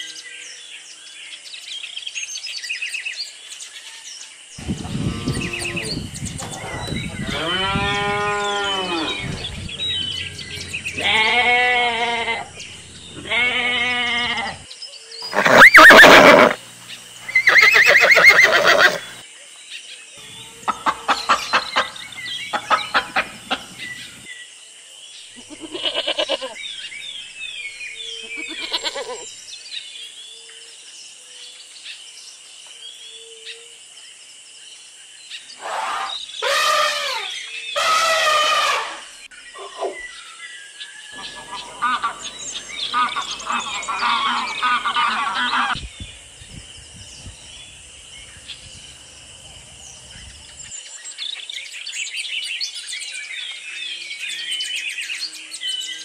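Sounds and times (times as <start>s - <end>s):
small birds chirping: 4.6s - 19.2s, 20.1s - 24.4s, 25.1s - 29.4s, 41.1s - 54.4s
cattle mooing: 4.9s - 6.0s, 6.6s - 14.6s, 41.2s - 45.8s
chickens clucking: 8.9s - 13.4s, 20.6s - 24.2s, 41.2s - 45.8s.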